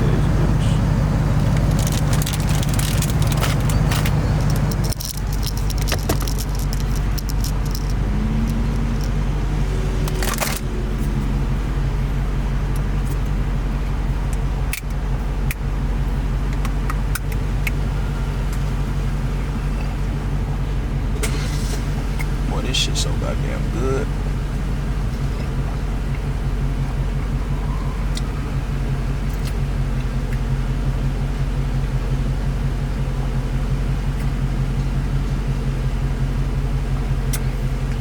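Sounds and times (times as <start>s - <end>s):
car engine droning: 0.0s - 38.0s
small clicks and rattles: 1.4s - 9.2s.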